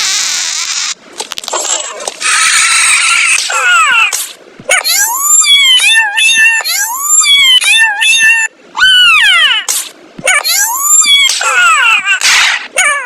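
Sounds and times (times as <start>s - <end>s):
young animal whining: 4.7s - 9.7s.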